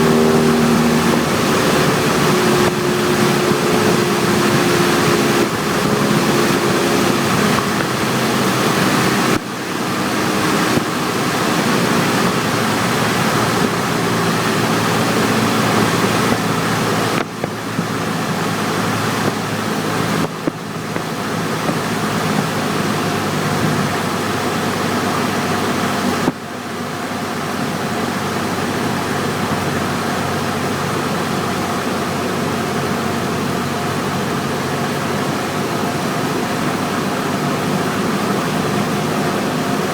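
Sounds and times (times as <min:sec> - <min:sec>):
rushing air: 0:00.0 - 0:26.5
plane engine and propeller: 0:00.0 - 0:39.9.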